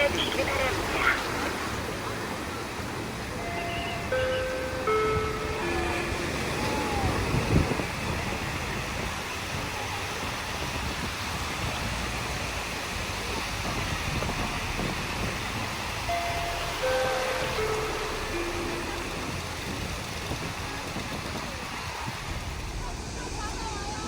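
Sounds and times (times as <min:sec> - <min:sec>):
surf: 0:00.0 - 0:24.0
chime melody: 0:03.4 - 0:07.1, 0:16.0 - 0:19.9
wind on the microphone: 0:04.8 - 0:16.4, 0:18.6 - 0:24.0.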